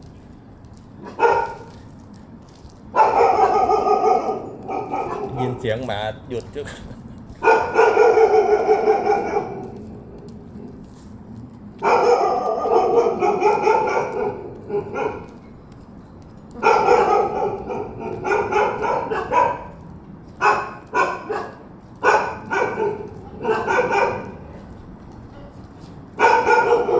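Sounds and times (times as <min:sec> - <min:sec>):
dog barking and yelping: 0:01.0 - 0:01.8, 0:02.9 - 0:05.6, 0:07.4 - 0:10.0, 0:11.8 - 0:15.4, 0:16.5 - 0:24.7, 0:26.1 - 0:26.9.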